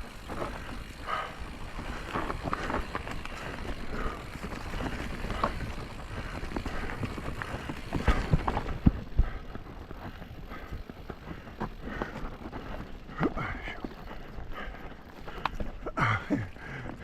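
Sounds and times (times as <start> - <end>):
bike rattling: 0.0 - 17.0
bike tyres rolling on dirt: 0.0 - 17.0
bike thumping over bumps: 1.9 - 9.4.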